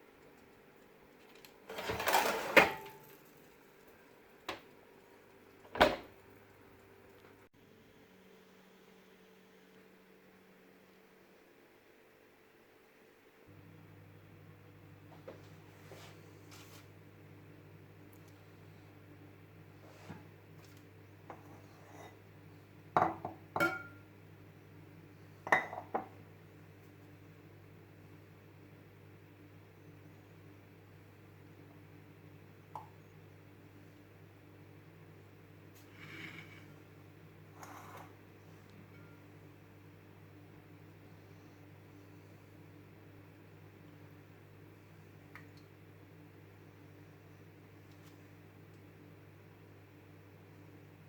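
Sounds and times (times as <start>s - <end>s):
low steady hum: 0.0s - 51.0s
kitchen items clattering: 1.6s - 3.6s
dishes knocking and clinking: 23.0s - 24.0s, 25.5s - 26.2s.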